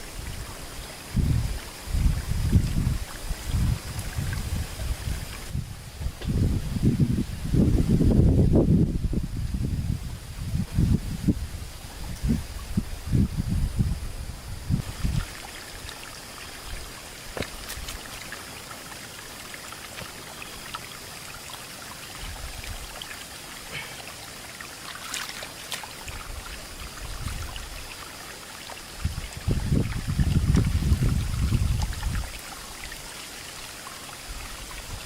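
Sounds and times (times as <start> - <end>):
water trickling: 0.0 - 5.7, 10.4 - 35.0.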